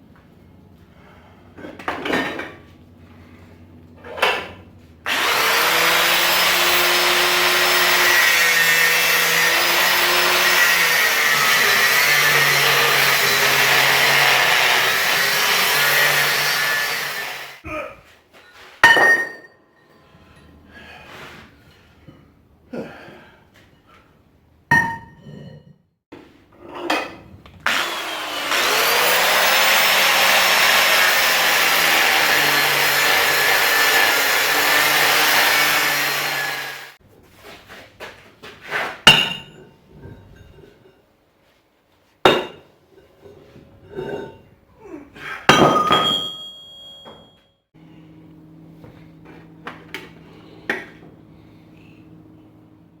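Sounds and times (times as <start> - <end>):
power tool machine noise: 5.1 - 17.6, 27.6 - 37.0.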